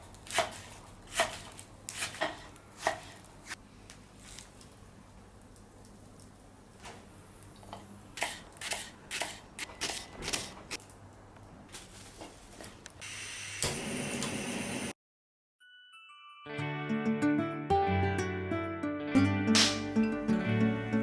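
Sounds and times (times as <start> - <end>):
kitchen utensils clicking and tapping: 0.4 - 3.3.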